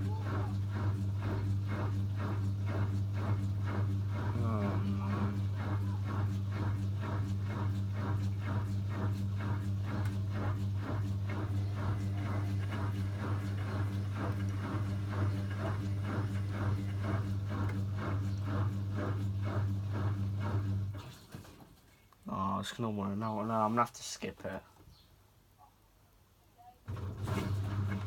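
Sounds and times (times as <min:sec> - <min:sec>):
rhythmic knocking of washing drum: 0:00.0 - 0:21.0, 0:26.9 - 0:28.0
washing machine motor hum: 0:00.0 - 0:21.5, 0:26.9 - 0:28.0.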